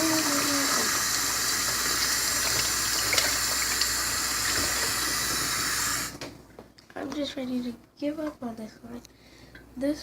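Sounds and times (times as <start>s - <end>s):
water tap running into sink: 0.0s - 6.2s.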